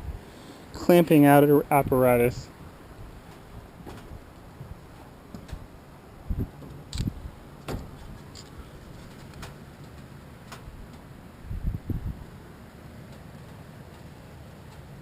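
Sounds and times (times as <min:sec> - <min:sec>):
steady low rumble: 0:00.0 - 0:13.0
dull low thumps: 0:03.0 - 0:08.2.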